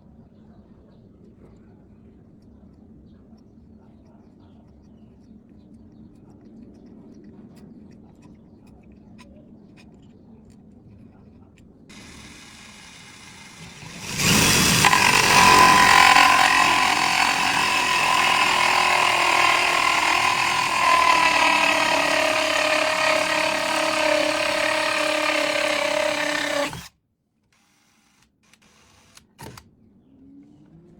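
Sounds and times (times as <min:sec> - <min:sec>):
electric drill with hole saw: 0:11.9 - 0:26.9.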